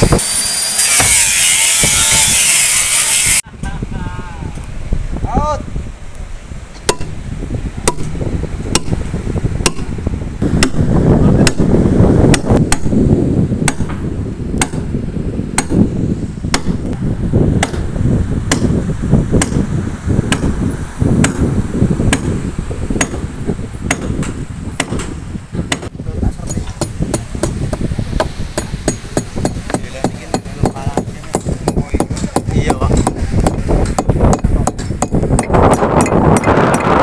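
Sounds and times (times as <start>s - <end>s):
hammering on timber: 6.8s - 7.2s, 7.8s - 13.0s, 13.6s - 14.9s, 15.6s - 15.9s, 16.5s - 17.0s, 17.6s - 18.8s, 19.4s - 19.7s, 20.3s - 20.6s, 21.2s - 22.4s, 23.0s - 23.3s, 23.9s - 37.0s.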